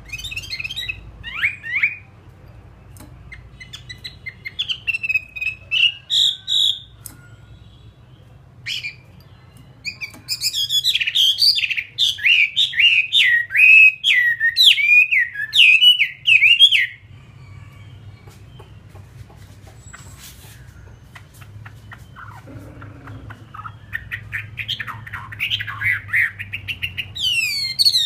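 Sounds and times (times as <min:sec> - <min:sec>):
bird chirps: 0:00.0 - 0:02.1, 0:02.8 - 0:28.0
bird singing whistled phrases: 0:00.1 - 0:02.1, 0:09.8 - 0:17.0, 0:21.7 - 0:28.0.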